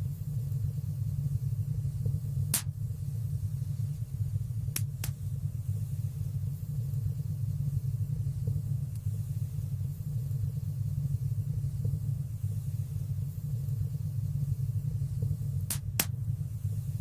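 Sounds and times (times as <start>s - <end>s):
fire crackling pops: 2.4s - 3.1s, 4.6s - 5.5s, 15.2s - 16.4s.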